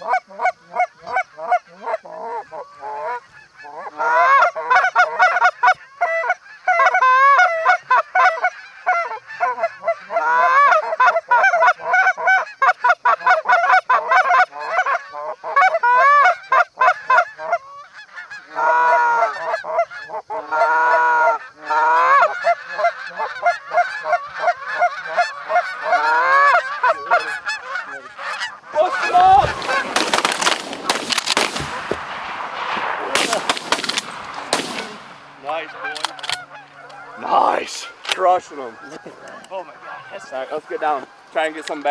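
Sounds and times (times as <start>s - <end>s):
geese honking: 0.0s - 41.9s
shotgun shots: 28.8s - 40.0s.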